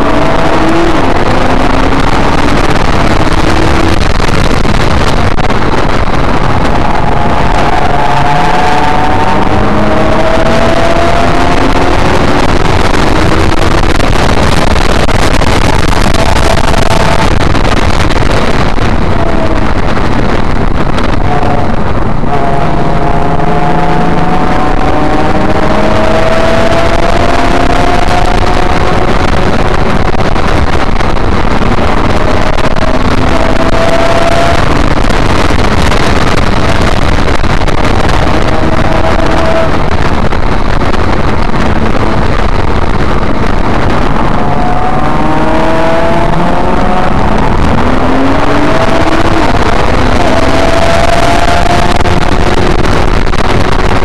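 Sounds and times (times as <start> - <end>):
car engine revving through gears: 0.0 - 54.0
road and tyre noise: 0.0 - 54.0.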